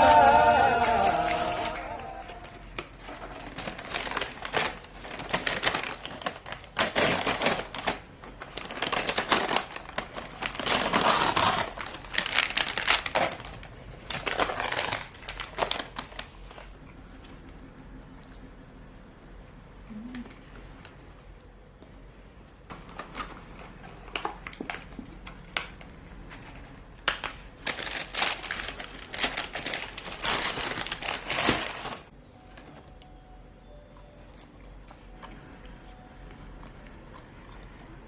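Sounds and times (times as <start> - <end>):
crinkling and clicking handling: 2.4 - 17.6, 22.5 - 33.1.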